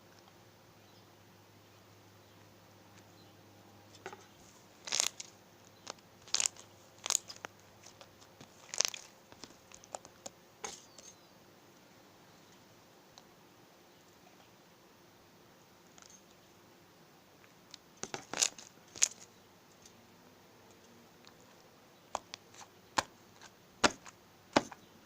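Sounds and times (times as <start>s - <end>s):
slime popping and crackling: 4.8s - 5.3s, 5.9s - 10.0s.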